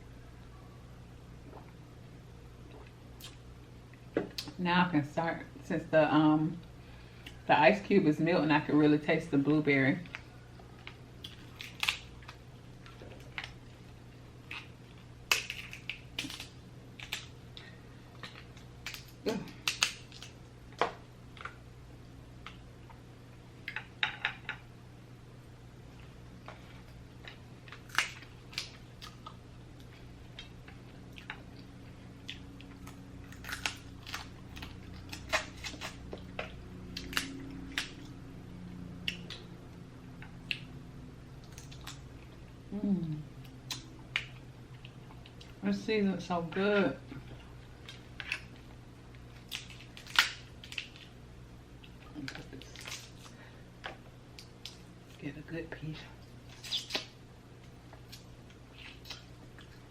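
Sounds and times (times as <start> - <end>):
low hum: 0.0 - 56.6
chewing with wet mouth clicks: 2.6 - 4.5, 26.9 - 38.2, 39.0 - 40.8, 41.4 - 42.6, 43.4 - 45.6, 56.5 - 59.9
chewing: 10.0 - 20.4, 26.0 - 38.2
shellfish shells cracking: 10.9 - 12.4, 14.4 - 17.6, 18.2 - 20.4, 27.3 - 29.2, 47.8 - 51.2.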